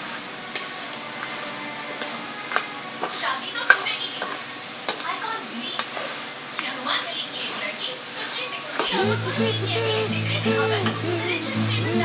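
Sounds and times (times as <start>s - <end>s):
food sizzling in a metal pan: 3.0s - 12.0s.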